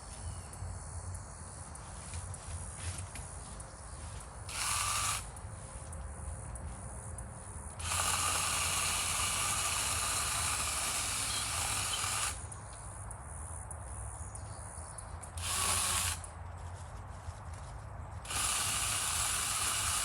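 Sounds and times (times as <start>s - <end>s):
chainsaw cutting wood: 4.5s - 5.4s, 7.8s - 12.4s, 15.4s - 16.3s, 18.2s - 20.0s
chainsaw running low: 4.5s - 5.4s, 7.8s - 12.4s, 15.4s - 16.3s, 18.2s - 20.0s.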